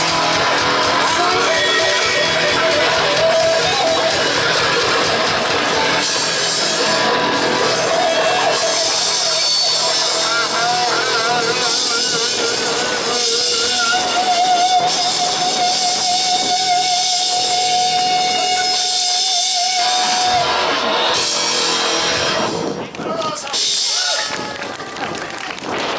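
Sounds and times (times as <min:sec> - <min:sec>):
live rock music: 0:00.0 - 0:24.7.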